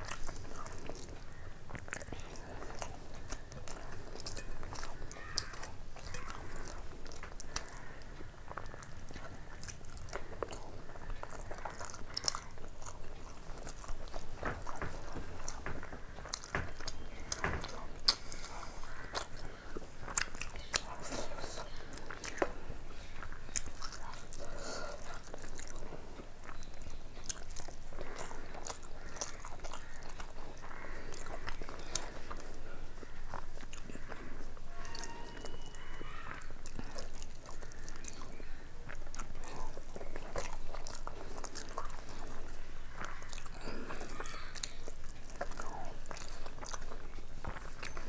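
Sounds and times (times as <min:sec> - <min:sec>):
person chewing food: 0:00.0 - 0:48.0.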